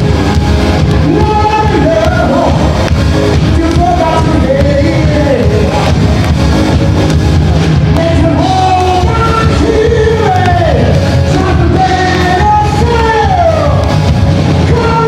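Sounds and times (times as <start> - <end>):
loud band playing: 0.0 - 15.0
person singing: 0.9 - 6.2, 7.9 - 14.0.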